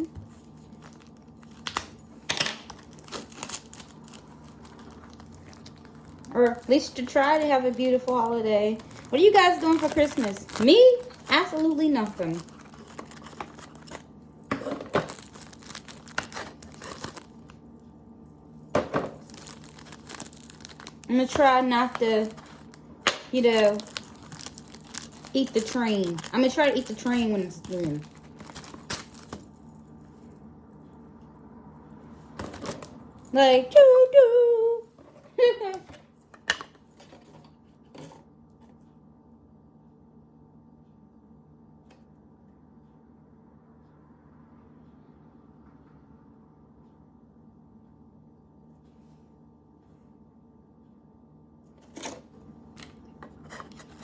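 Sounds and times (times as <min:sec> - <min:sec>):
steady low hum: 0:00.0 - 0:54.0
packaging crinkling and tearing: 0:00.3 - 0:14.1, 0:14.9 - 0:17.5, 0:19.2 - 0:29.4, 0:51.8 - 0:54.0.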